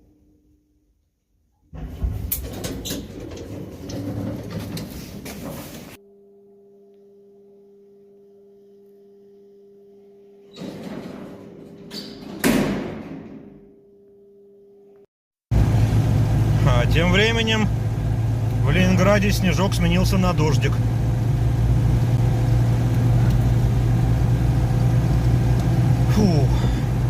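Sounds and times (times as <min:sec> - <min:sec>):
lift doors sliding and clattering: 0:01.8 - 0:06.0, 0:10.5 - 0:13.4.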